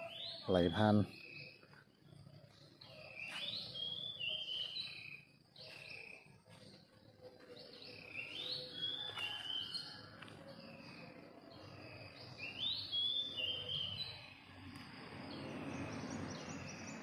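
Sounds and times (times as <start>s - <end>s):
songbird whistling: 2.8s - 6.2s, 7.6s - 10.1s, 11.9s - 14.4s.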